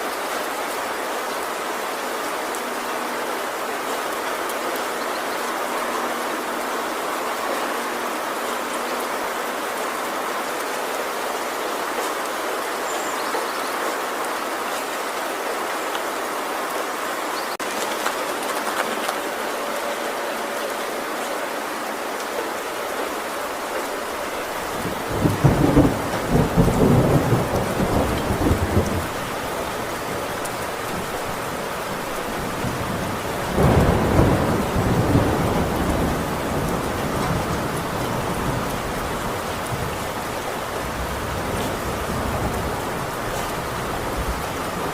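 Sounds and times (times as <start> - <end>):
heavy rain on a tin roof: 0.0 - 44.9
thunder rumbling: 23.1 - 44.9.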